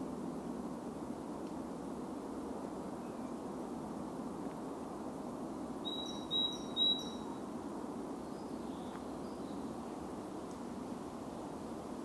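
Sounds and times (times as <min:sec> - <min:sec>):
woodland ambience hum: 0:00.0 - 0:12.0
songbird whistling: 0:05.8 - 0:07.2.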